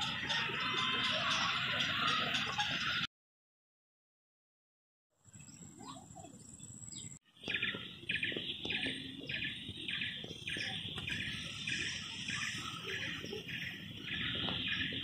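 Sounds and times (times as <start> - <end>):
bird calling rhythmically: 0.0 - 3.1, 7.0 - 15.0.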